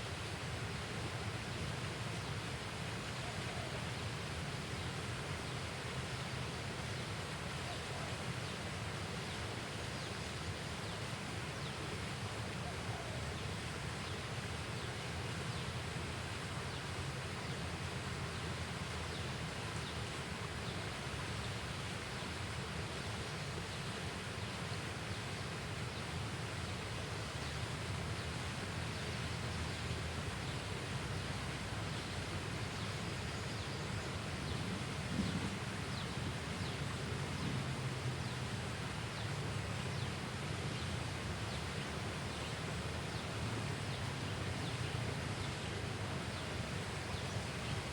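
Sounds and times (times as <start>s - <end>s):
rustling hiss: 25.3s - 47.9s
low wind rumble: 33.2s - 47.9s.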